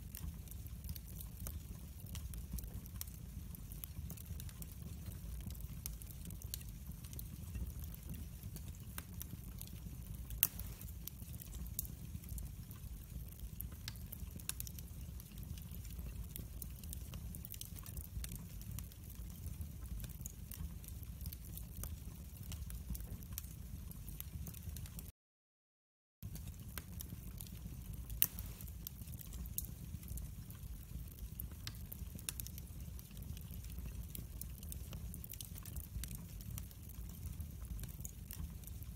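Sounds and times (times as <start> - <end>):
fire crackling in fireplace: 0.0 - 25.1, 26.2 - 38.9
loud pop of fire: 10.4 - 11.0, 28.1 - 28.7.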